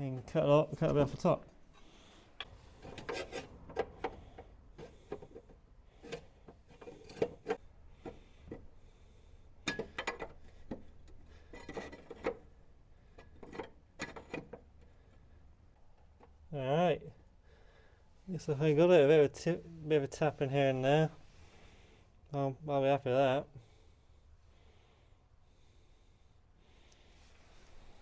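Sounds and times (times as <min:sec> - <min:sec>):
metal scraping: 0:02.6 - 0:05.4.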